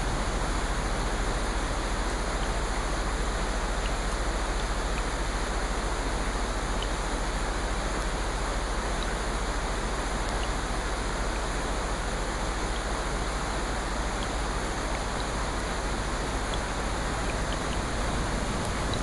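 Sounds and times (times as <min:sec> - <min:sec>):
steady rushing hiss: 0:00.0 - 0:19.0
faint light ticks: 0:03.8 - 0:05.2, 0:06.7 - 0:08.2, 0:08.9 - 0:09.2, 0:10.2 - 0:11.5, 0:12.7 - 0:13.0, 0:14.1 - 0:15.3, 0:16.4 - 0:19.0.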